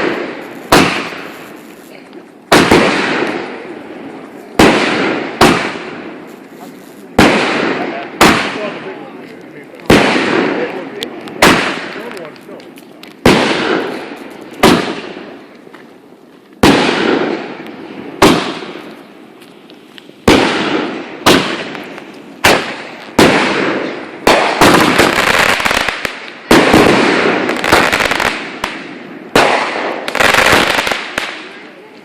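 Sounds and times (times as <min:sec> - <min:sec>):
fireworks bangs: 0:00.0 - 0:32.0.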